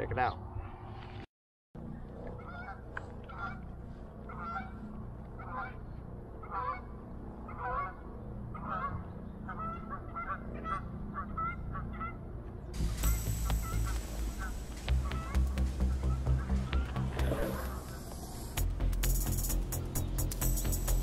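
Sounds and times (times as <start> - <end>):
honking bird calls: 2.4 - 12.2, 12.8 - 18.6
low steady rumble: 12.7 - 21.0.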